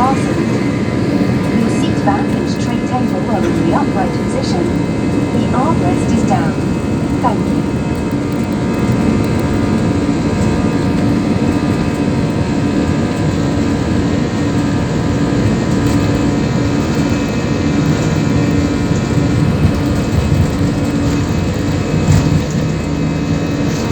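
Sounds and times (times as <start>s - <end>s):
jet engine cabin rumble: 0.0s - 23.9s.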